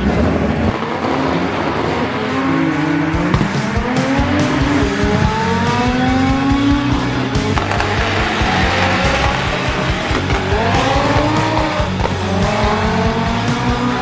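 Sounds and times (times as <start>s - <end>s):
music: 0.0s - 14.0s
car engine revving hard: 3.3s - 14.0s
tyres squealing: 5.3s - 14.0s.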